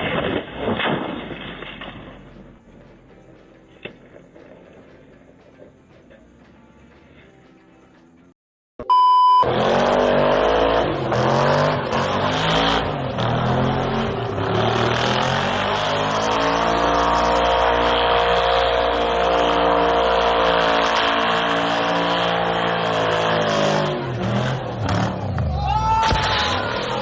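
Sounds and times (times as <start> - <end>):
short high beep: 8.8 - 9.5
engine revving high: 9.4 - 25.4.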